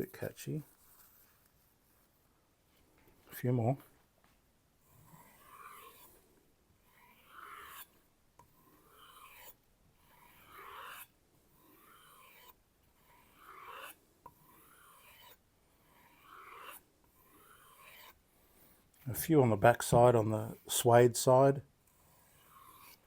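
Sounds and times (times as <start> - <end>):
knife rubbing on leather strop: 8.9 - 11.0, 13.1 - 13.9.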